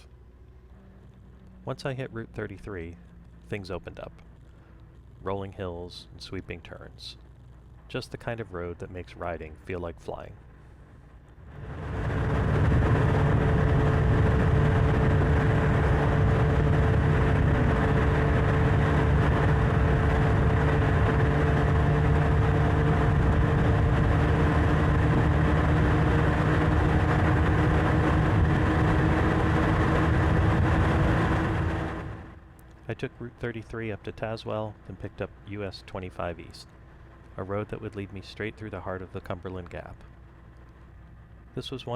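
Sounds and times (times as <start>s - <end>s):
wind and road noise: 0.0s - 38.1s
motorcycle engine cruising: 11.2s - 32.9s.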